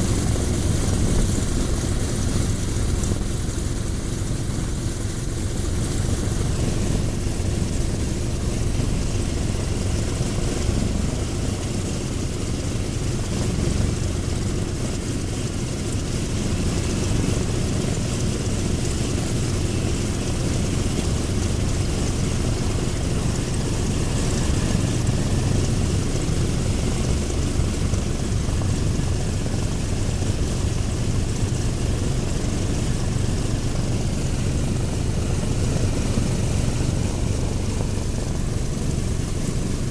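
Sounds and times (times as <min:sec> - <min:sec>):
radial engine running: 0:00.0 - 0:39.9.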